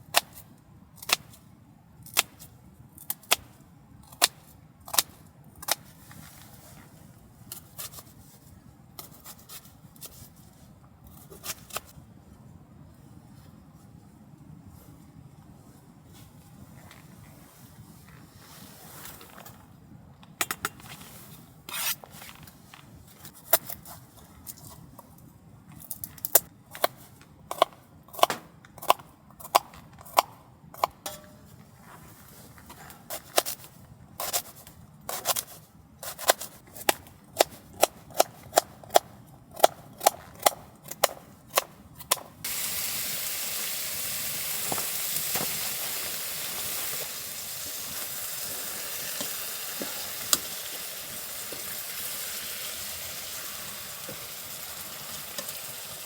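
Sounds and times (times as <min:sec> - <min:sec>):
food frying in a pan: 0:42.4 - 0:56.0.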